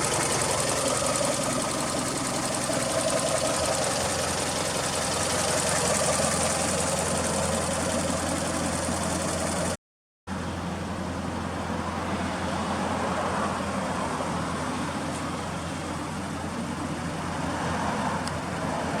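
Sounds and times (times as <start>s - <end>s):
car engine running: 0.0s - 9.8s.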